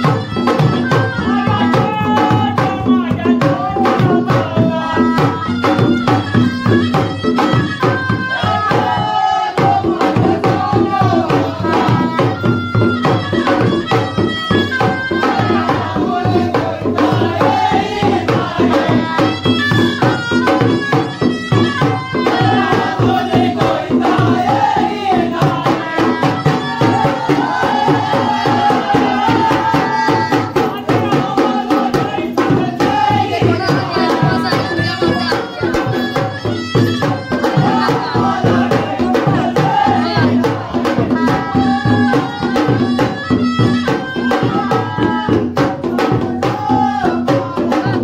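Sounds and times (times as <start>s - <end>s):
person singing: 0.0s - 48.0s
fast dense drumming: 14.7s - 48.0s.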